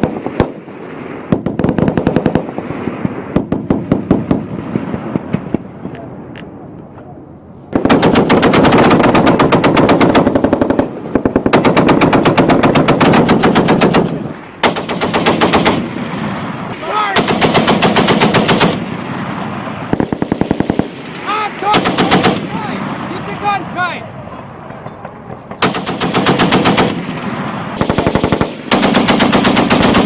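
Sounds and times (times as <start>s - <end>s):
heavy machine gun bursts: 17.2s - 19.1s, 25.5s - 30.0s.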